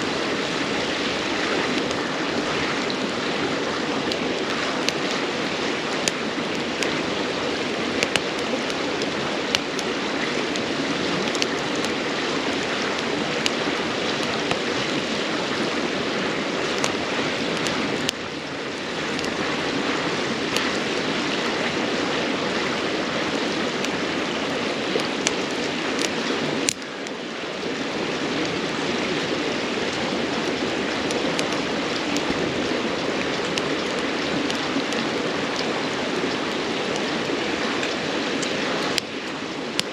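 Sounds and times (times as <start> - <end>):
campfire crackling and popping: 0.0 - 39.9
river babbling: 0.0 - 39.9.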